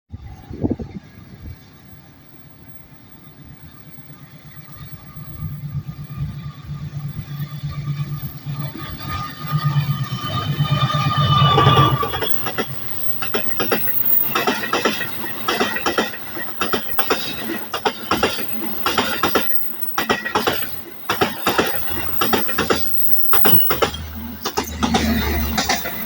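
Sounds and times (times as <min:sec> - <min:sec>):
train rolling rumble: 0:00.1 - 0:26.0
wheels clattering over rail joints: 0:07.3 - 0:26.0.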